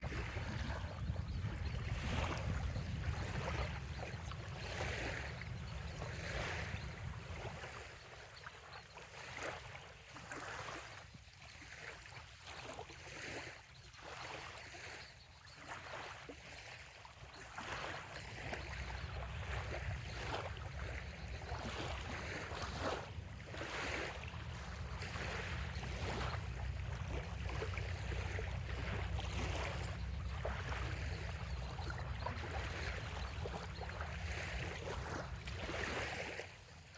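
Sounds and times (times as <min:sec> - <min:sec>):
wind rumble on microphone: 0:00.0 - 0:08.0, 0:18.5 - 0:36.2
small waves lapping on shore: 0:00.0 - 0:36.9.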